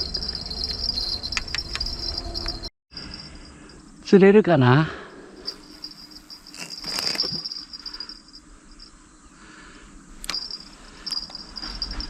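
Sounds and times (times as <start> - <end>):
insects trilling: 0.0 - 12.0
rustle: 5.4 - 8.2.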